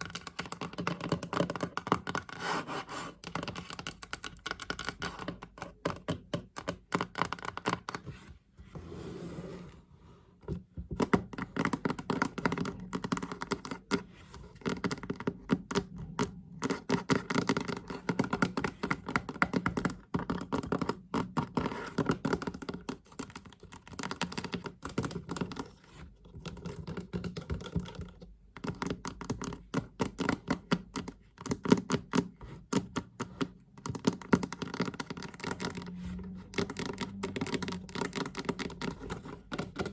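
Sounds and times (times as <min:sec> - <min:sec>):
fast tapping on a chest: 0:10.6 - 0:25.7, 0:26.3 - 0:39.9.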